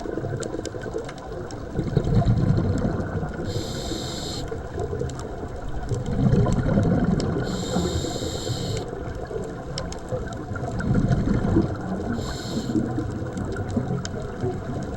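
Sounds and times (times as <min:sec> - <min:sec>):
exhaled bubbles rushing: 0:00.0 - 0:14.9
regulator inhale hiss: 0:03.4 - 0:04.6, 0:07.4 - 0:08.9, 0:12.0 - 0:13.0.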